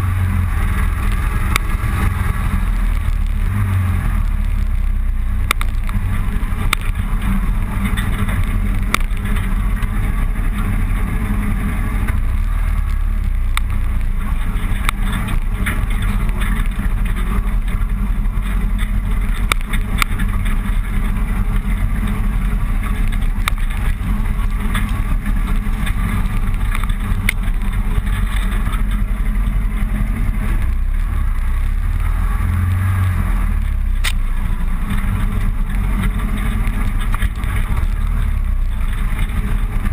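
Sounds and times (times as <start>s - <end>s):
motorcycle engine rumble: 0.0s - 39.9s.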